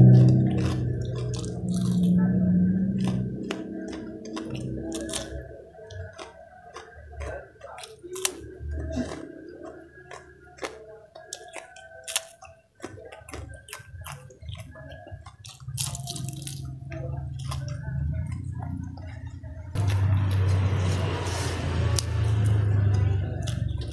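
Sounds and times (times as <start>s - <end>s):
crunching fried fritters: 0.0s - 23.9s.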